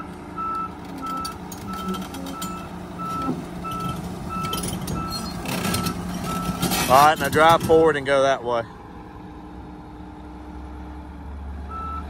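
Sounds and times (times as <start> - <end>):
reversing alarm beeping: 0.0 - 6.8, 11.7 - 12.0
excavator engine running: 0.0 - 12.0.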